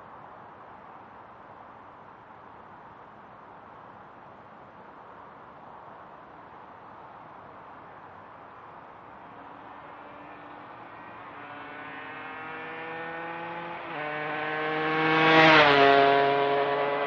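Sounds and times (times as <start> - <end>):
motorcycle riding past: 9.2 - 17.0.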